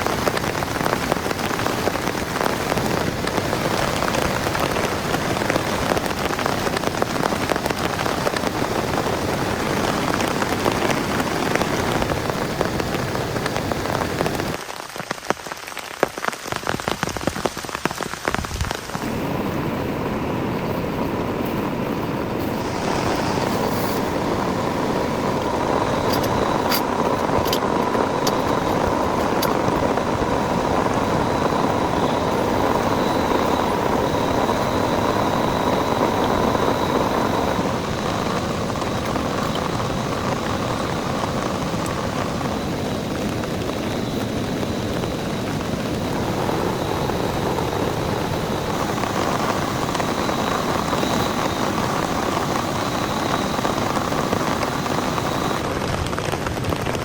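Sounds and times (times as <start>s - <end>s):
heavy rain falling: 0.0s - 57.0s
faint steady hum: 16.6s - 55.7s.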